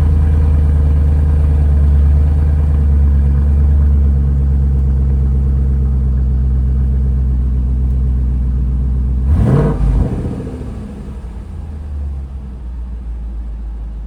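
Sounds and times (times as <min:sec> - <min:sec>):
car engine burbling: 0:00.0 - 0:14.0
engine revving: 0:09.2 - 0:11.9.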